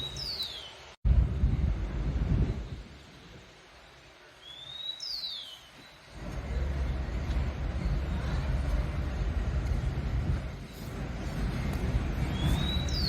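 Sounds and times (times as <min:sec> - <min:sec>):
steady low rumble: 0:01.0 - 0:03.4, 0:06.1 - 0:13.0.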